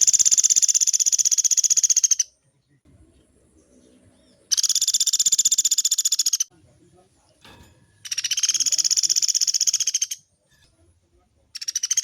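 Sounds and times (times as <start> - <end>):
woodpecker rattling trills: 0.0 - 2.3, 4.5 - 6.5, 8.0 - 10.3, 11.6 - 12.0.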